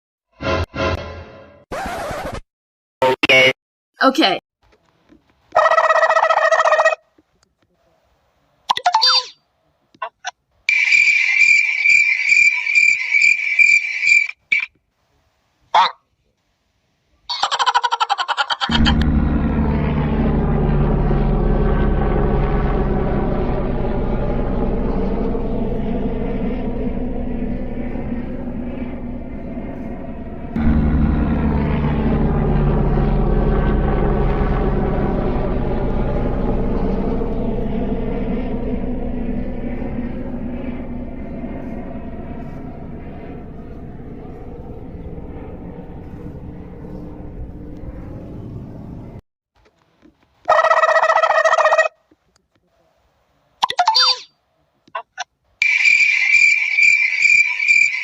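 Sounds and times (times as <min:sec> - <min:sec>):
engine drone: 0:18.6 - 0:49.2
loud multi-pitched buzzing: 0:18.7 - 0:46.8.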